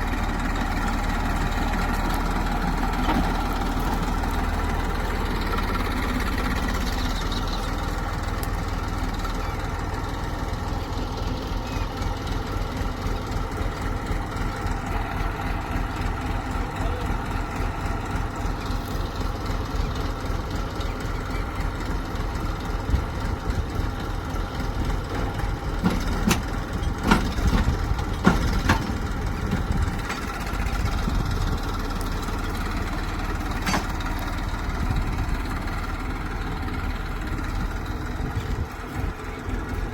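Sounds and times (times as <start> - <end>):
diesel engine running: 0.0 - 39.9
sharp metallic clanks: 33.5 - 34.1.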